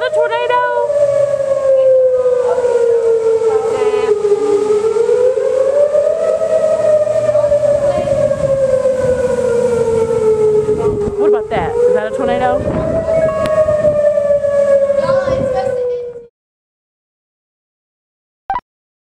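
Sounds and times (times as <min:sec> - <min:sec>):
tornado warning siren wailing: 0:00.0 - 0:16.3.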